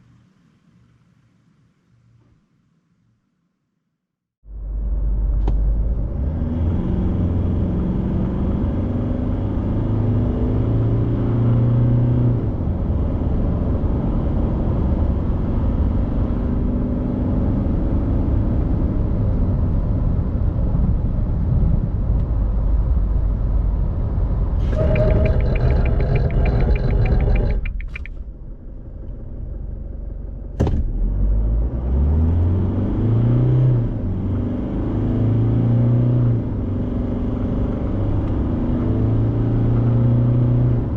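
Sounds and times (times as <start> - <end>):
diesel engine accelerating: 4.5 - 20.8, 22.1 - 40.9
road noise: 19.6 - 40.9.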